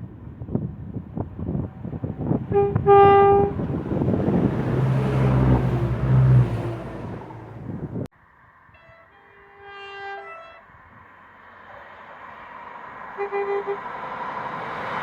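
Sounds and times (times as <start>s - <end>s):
train passing rumble: 0.0s - 15.0s
train horn: 2.5s - 3.6s, 8.7s - 10.6s, 13.2s - 13.9s.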